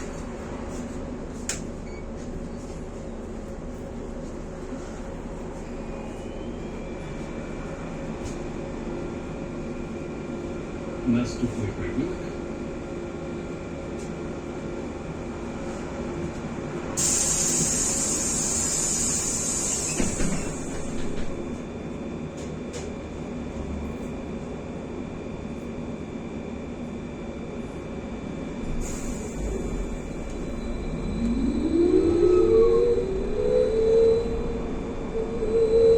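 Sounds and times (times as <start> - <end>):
trolleybus running noise: 0.0 - 35.9
compressed-air hiss: 17.0 - 20.2.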